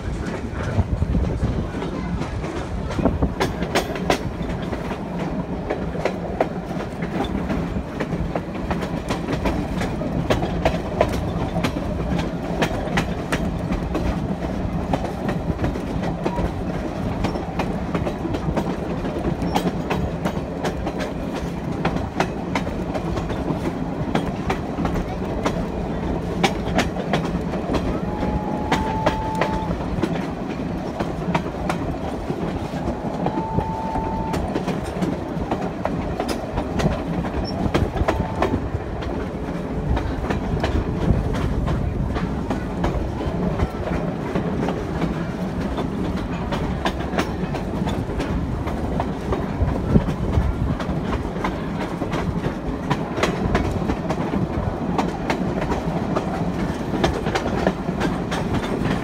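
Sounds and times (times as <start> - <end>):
train coach rumbling on track: 0.0 - 59.0
wheels clicking over rail joints: 0.0 - 59.0
short high-pitched tones: 33.2 - 34.4.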